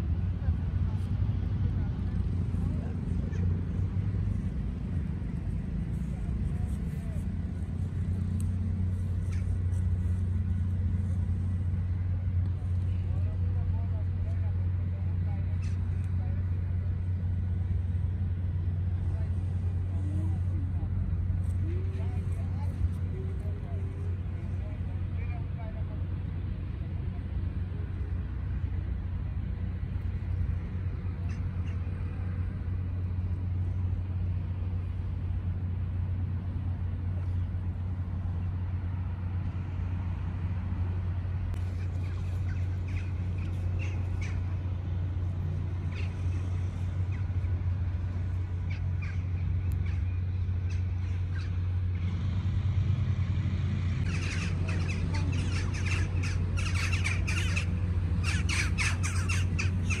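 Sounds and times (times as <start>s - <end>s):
steady low hum: 0.0s - 60.0s
birds squawking: 31.2s - 31.9s, 41.6s - 45.1s, 45.7s - 52.0s, 54.0s - 60.0s.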